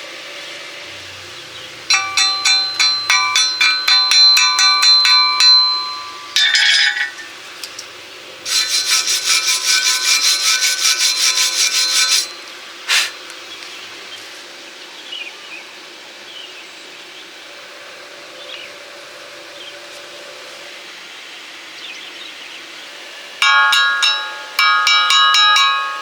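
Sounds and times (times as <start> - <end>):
metal ringing under strikes: 1.9 - 7.9, 8.5 - 12.5, 23.4 - 26.0
metal scraping: 1.9 - 13.2.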